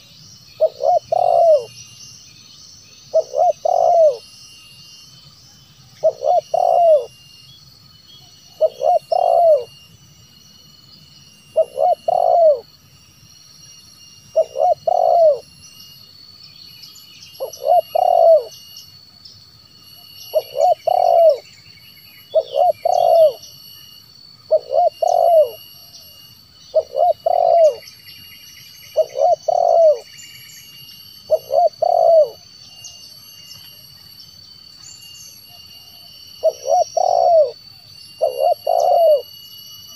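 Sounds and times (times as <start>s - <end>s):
faint small-bird chirps: 0.0s - 19.4s, 20.0s - 39.9s
high insect drone: 0.0s - 39.9s
dove cooing: 0.6s - 1.7s, 3.1s - 4.2s, 6.0s - 7.1s, 8.5s - 9.7s, 11.6s - 12.7s, 14.4s - 15.4s, 17.4s - 18.5s, 20.3s - 21.4s, 22.3s - 23.5s, 24.5s - 26.0s, 26.7s - 27.9s, 28.9s - 30.1s, 31.3s - 32.9s, 35.8s - 39.3s.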